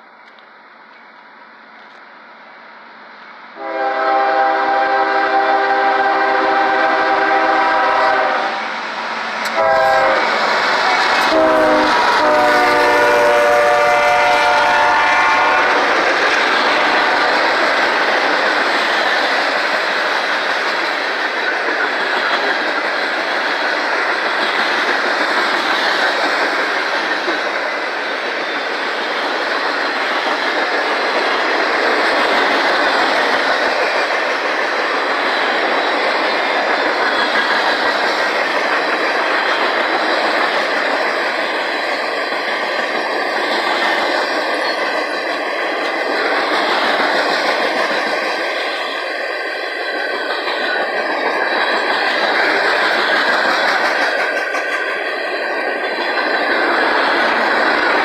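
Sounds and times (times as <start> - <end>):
locomotive air horn blasts: 3.6 - 8.6, 9.5 - 10.3, 11.2 - 15.9.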